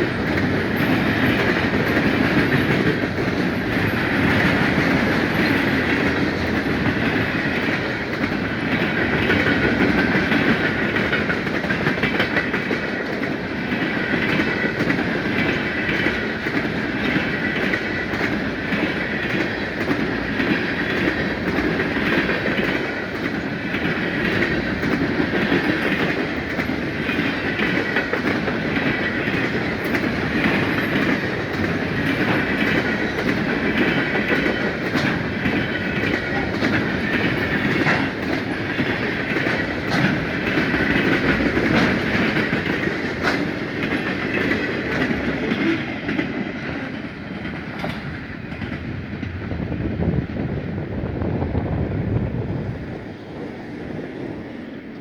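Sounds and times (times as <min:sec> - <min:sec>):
high ringing from wheels on rails: 0:00.0 - 0:49.4
wheels clicking over rail joints: 0:00.0 - 0:49.4
freight train rumbling past: 0:00.0 - 0:55.0.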